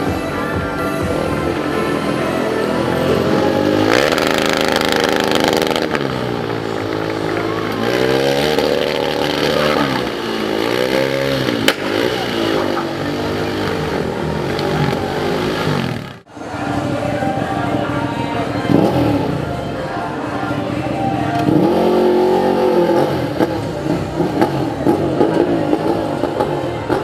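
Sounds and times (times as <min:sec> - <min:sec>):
motorcycle engine revving: 0:00.0 - 0:27.0
sharp crack: 0:10.7 - 0:12.9.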